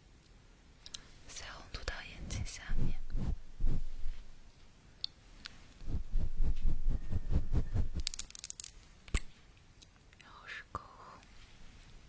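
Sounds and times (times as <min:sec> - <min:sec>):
soft low thuds: 0:02.1 - 0:04.4, 0:05.8 - 0:08.1
crisp crackle: 0:08.0 - 0:08.9.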